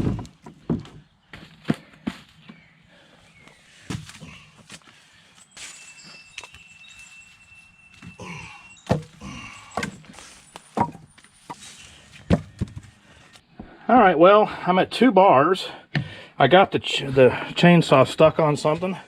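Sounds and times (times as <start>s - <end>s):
wooden thuds of tree limbs: 8.8s - 13.0s.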